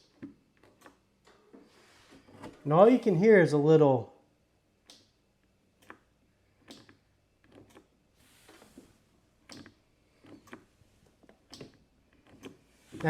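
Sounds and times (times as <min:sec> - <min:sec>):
faint solenoid clicks: 0:05.8 - 0:07.9.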